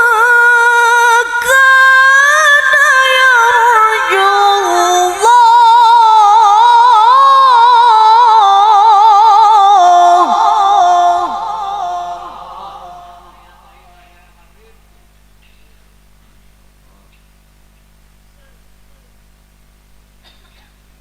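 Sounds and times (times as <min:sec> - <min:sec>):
woman reciting melodically: 0:00.0 - 0:14.0.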